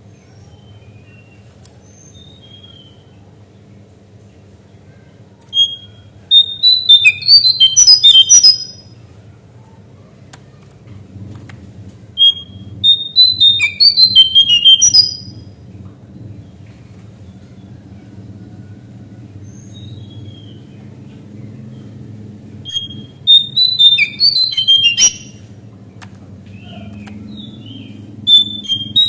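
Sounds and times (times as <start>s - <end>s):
faint low hum: 0.0s - 29.0s
songbird whistling: 5.5s - 8.9s, 12.2s - 15.4s, 22.6s - 25.5s, 26.6s - 29.0s.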